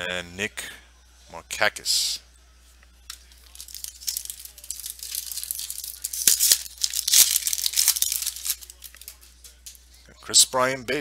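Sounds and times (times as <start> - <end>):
wrapper tearing and crinkling: 3.4 - 9.2.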